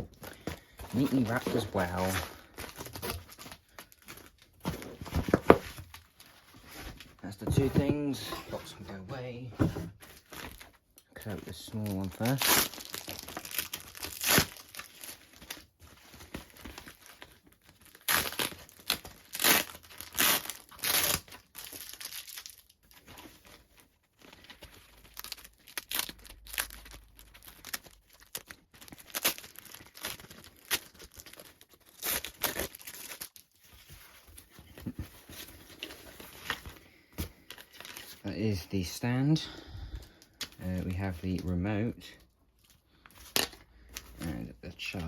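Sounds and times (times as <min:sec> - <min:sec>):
packaging crinkling and tearing: 0:00.0 - 0:07.0, 0:10.0 - 0:38.2.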